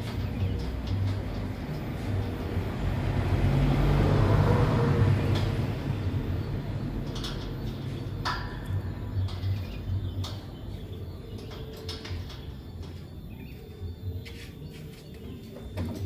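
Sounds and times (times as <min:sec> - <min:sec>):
passing vehicle rumbling: 0:00.0 - 0:11.7.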